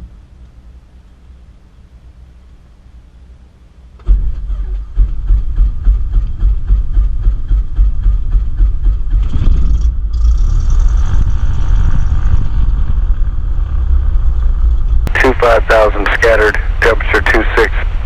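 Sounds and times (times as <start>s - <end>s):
piston aircraft engine idling: 0.0s - 10.2s, 14.7s - 18.0s.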